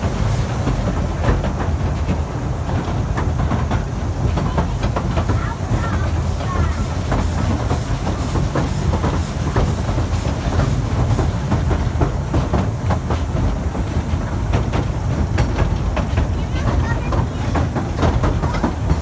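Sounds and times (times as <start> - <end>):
rhythmic steam hissing: 0.0 - 19.0
steam train rumble: 0.0 - 19.0.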